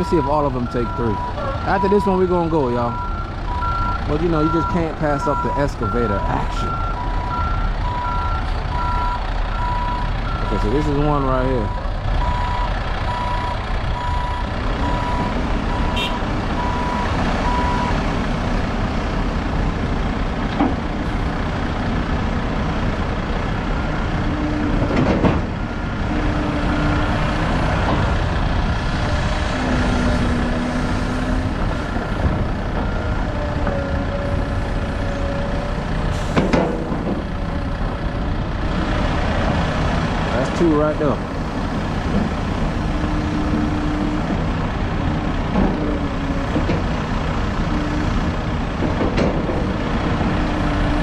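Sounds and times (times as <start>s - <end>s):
diesel machinery running: 0.0s - 51.0s
reversing alarm beeping: 2.9s - 10.7s, 11.6s - 18.0s.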